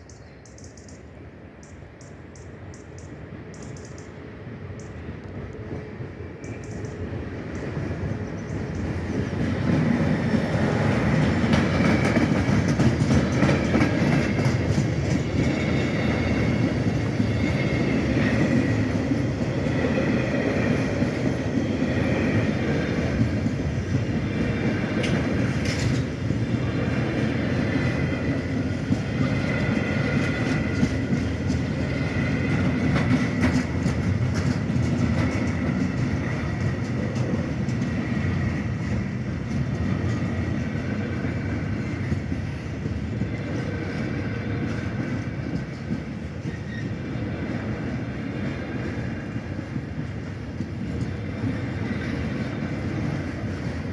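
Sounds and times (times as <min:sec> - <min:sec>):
freight train rumbling past: 0:00.1 - 0:53.9
wheels clattering over rail joints: 0:08.0 - 0:43.6.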